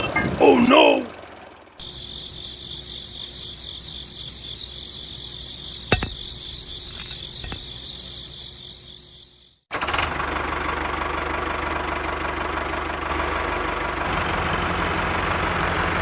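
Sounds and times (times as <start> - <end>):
high-pitched insect trilling: 1.8 - 9.6
sharp knocks: 5.9 - 6.4.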